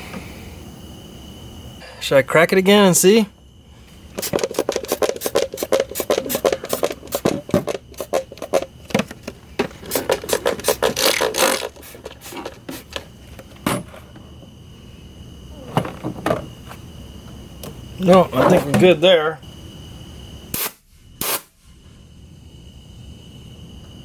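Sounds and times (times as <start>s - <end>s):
gas sputtering and hissing: 4.0s - 13.4s.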